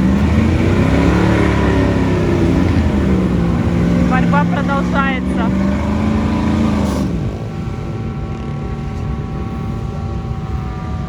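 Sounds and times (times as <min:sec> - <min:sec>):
truck engine under load: 0:00.0 - 0:11.0.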